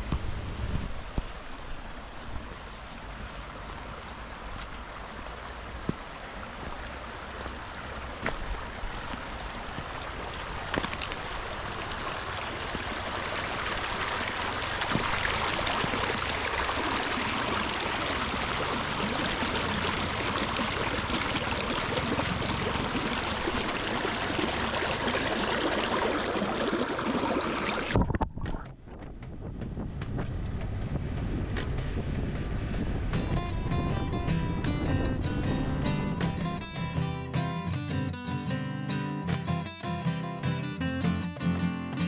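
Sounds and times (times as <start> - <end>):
steady rushing noise: 28.8 - 36.7.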